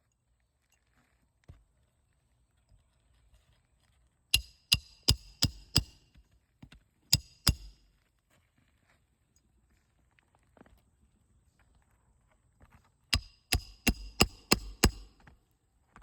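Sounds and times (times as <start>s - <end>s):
hammer striking roofing nails: 4.4s - 6.0s, 7.1s - 7.8s, 13.2s - 15.2s.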